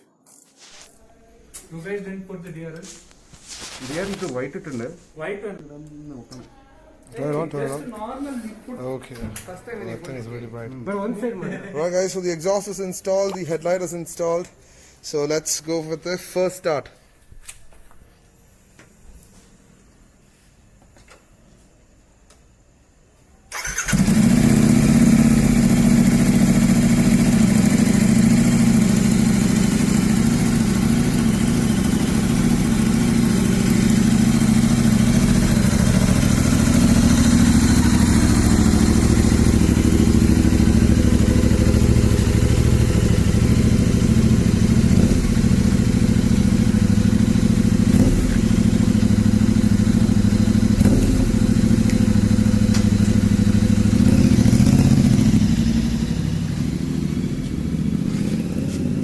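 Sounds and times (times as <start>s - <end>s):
motorcycle engine starting and running: 23.5s - 59.0s.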